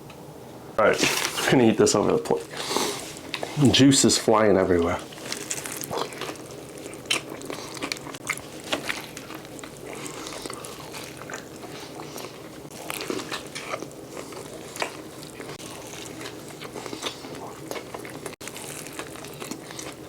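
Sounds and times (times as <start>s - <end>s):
chewing and biting food: 4.8s - 20.0s.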